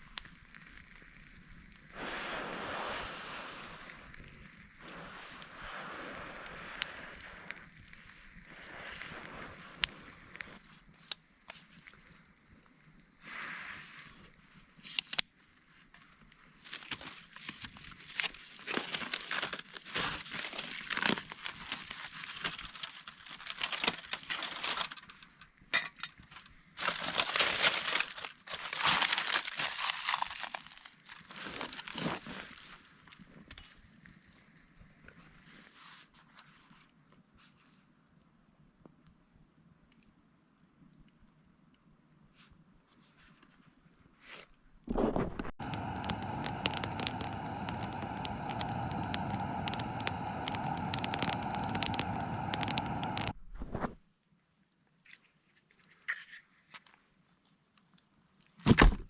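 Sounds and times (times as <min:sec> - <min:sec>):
sharp clicks: 0:45.6 - 0:53.3.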